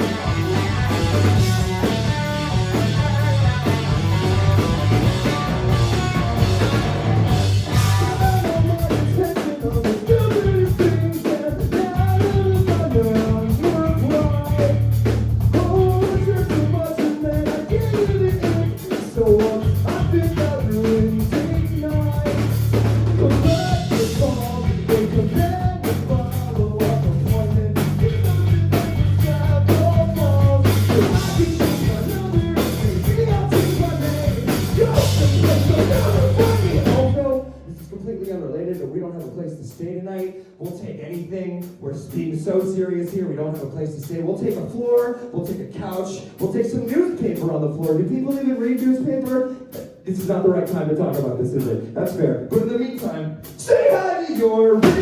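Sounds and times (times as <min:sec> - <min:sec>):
electric guitar: 0:00.0 - 0:08.5
bass guitar: 0:00.0 - 0:38.7, 0:54.8 - 0:55.0
drum kit: 0:00.0 - 0:55.0
sung vocals: 0:00.0 - 0:55.0.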